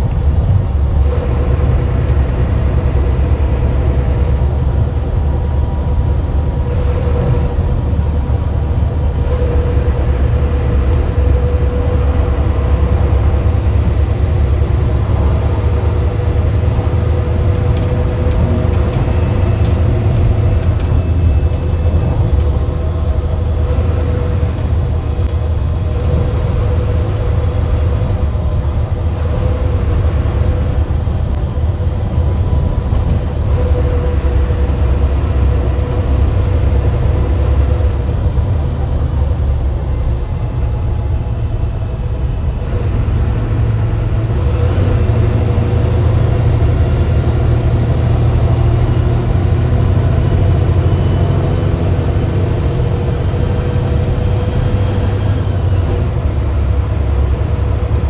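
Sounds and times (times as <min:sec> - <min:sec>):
bus diesel engine under load: 0:00.0 - 0:58.0.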